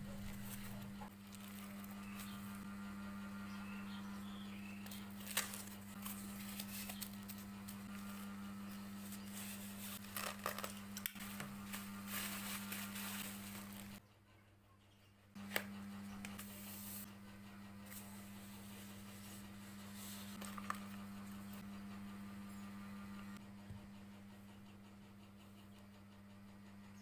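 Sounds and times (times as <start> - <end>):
steady low hum: 0.0 - 14.0, 15.2 - 27.0
clicks and rustles of packaging: 10.0 - 13.8.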